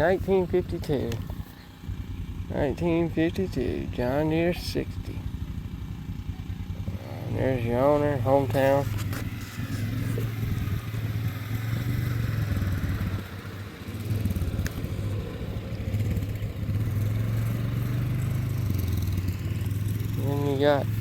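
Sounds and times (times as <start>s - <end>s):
engine pulsing drone: 0.0s - 21.0s.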